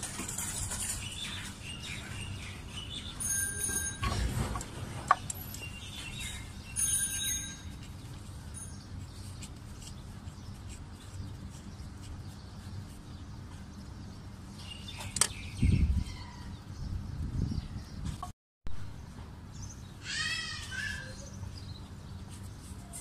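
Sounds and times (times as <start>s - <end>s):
birds chirping: 0.0s - 18.2s.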